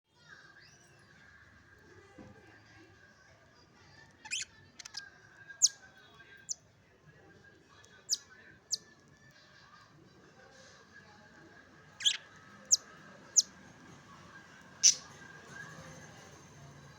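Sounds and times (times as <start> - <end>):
budgerigars chirping: 4.3 - 5.0, 12.0 - 13.5, 14.8 - 15.1.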